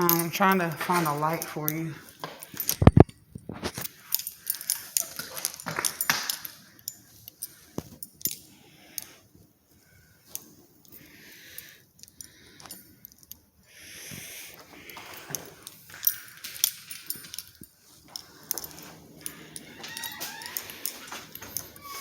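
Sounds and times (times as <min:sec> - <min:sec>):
keys jangling: 0:00.0 - 0:03.0, 0:03.6 - 0:09.1, 0:14.6 - 0:22.0.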